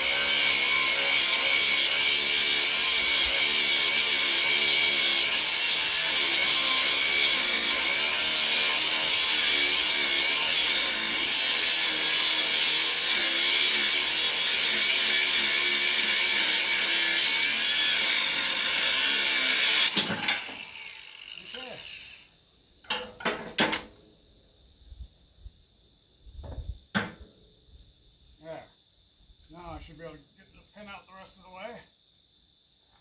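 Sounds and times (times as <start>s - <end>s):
power tool cutting metal: 0.0s - 22.3s.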